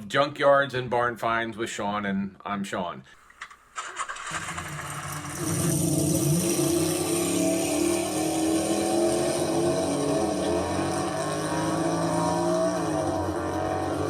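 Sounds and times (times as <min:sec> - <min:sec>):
vehicle engine running: 0:04.1 - 0:14.0.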